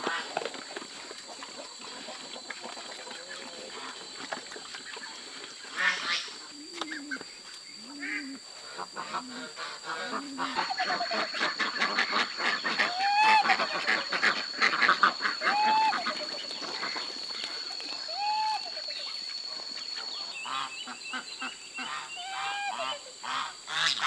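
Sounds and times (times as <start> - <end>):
fowl chattering: 9.0 - 24.0.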